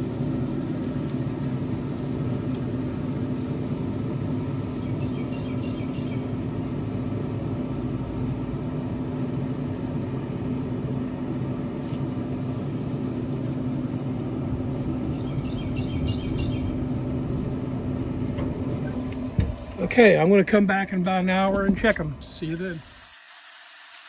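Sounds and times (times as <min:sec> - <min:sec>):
low mechanical hum: 0:00.0 - 0:24.0
rapid high chirping: 0:04.8 - 0:06.4, 0:14.9 - 0:16.9.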